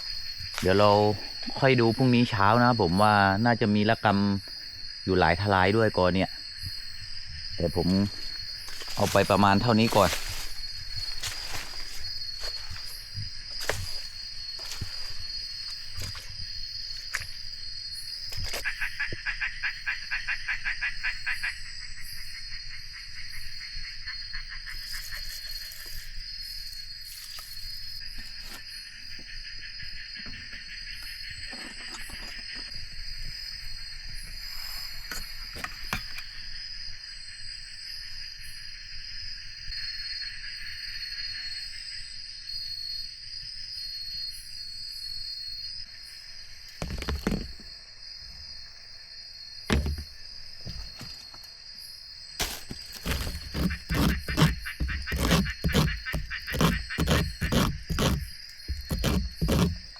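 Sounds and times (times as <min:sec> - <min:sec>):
high-pitched insect drone: 0:00.0 - 0:18.8
short knocks and rustles: 0:46.8 - 0:47.7, 0:49.7 - 0:51.3, 0:52.4 - 0:59.9.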